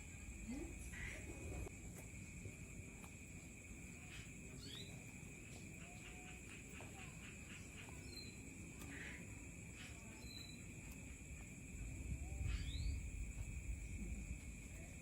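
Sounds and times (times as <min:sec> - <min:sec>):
bird chirps: 0:04.1 - 0:05.0, 0:05.8 - 0:10.9, 0:12.4 - 0:13.1.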